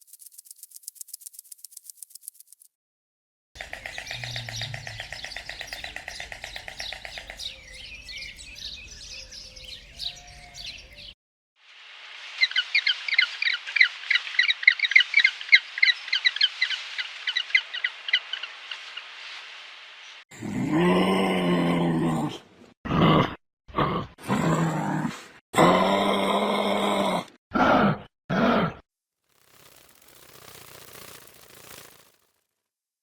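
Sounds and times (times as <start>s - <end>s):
birds twittering: 3.6s - 11.2s, 12.4s - 20.2s.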